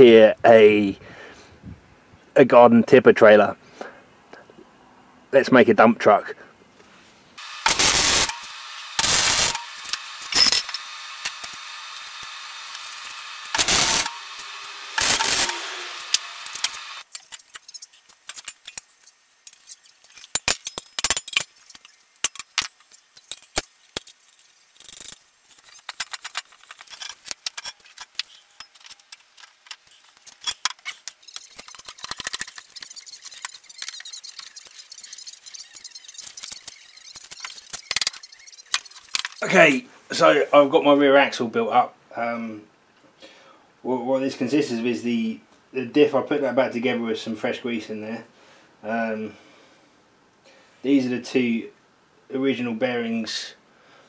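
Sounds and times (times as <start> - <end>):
loud short bursts: 7.4 - 10.6, 13.0 - 16.7
machine hum: 7.4 - 17.0
metal parts clattering and knocking: 17.1 - 39.4.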